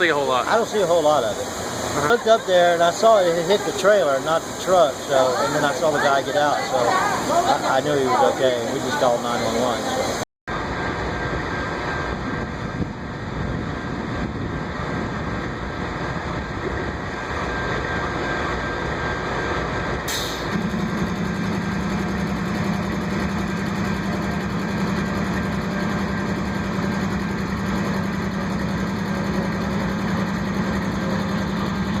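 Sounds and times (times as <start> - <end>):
vehicle engine noise: 0.0 - 32.0
steady low hum: 9.9 - 32.0
brief hiss: 20.1 - 21.0.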